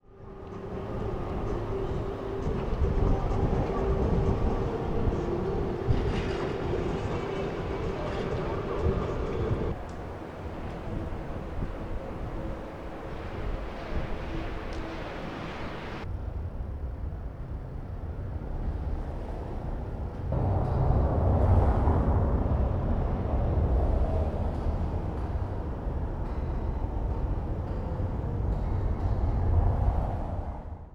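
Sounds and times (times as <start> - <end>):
constant hum: 0.0 - 30.8
low steady city rumble: 0.0 - 30.9
vehicle engine rumble: 19.6 - 30.4.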